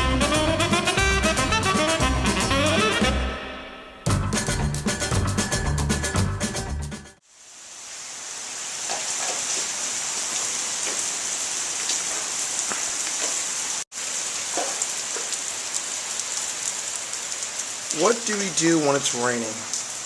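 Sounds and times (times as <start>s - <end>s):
steady rain hiss: 7.2s - 20.0s.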